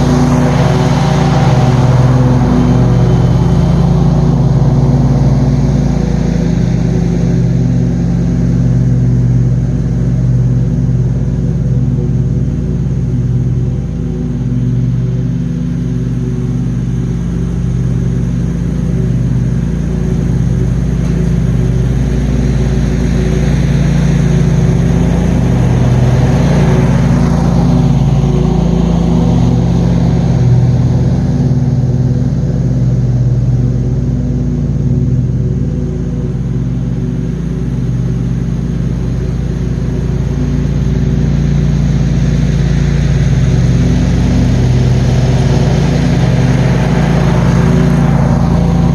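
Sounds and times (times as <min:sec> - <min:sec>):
rushing swell: 0:00.0 - 0:07.7
mower engine hum: 0:00.0 - 0:48.9.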